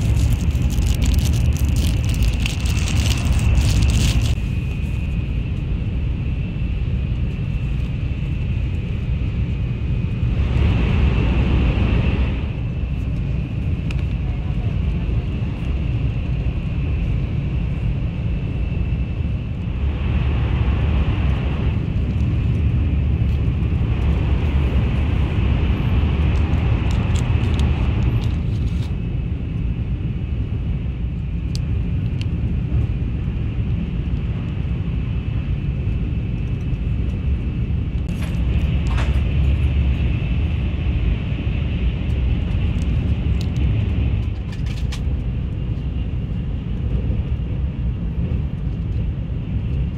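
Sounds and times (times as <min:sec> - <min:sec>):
train rumble inside passenger car: 0:00.0 - 0:49.9.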